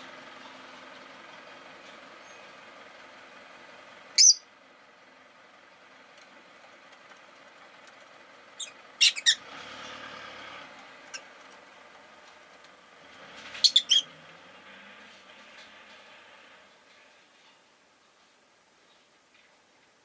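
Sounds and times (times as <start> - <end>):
bird chirping: 4.2 - 4.5, 8.6 - 9.4, 11.0 - 11.3, 13.5 - 14.1.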